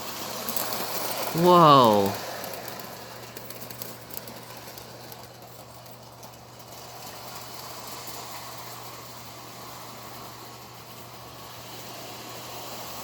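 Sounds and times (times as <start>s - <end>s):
model electric train running: 4.1s - 12.8s.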